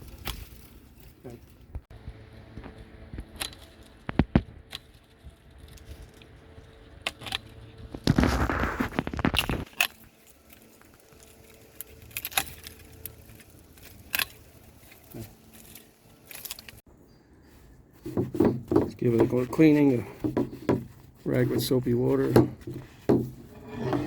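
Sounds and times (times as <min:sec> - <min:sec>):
leafy branches rustling: 0:00.0 - 0:18.2.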